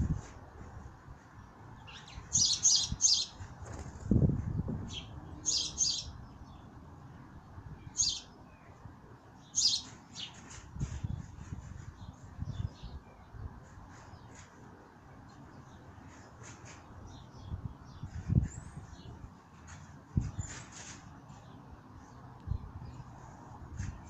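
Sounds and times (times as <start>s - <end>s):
small birds chirping: 1.2s - 3.5s, 4.8s - 6.8s, 7.8s - 14.6s.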